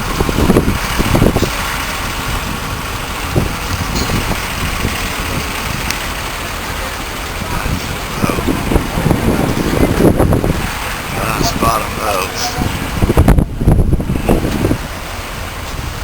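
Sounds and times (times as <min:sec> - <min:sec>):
boat engine idling: 0:00.0 - 0:16.0
brief voices: 0:07.5 - 0:08.6, 0:11.1 - 0:12.8.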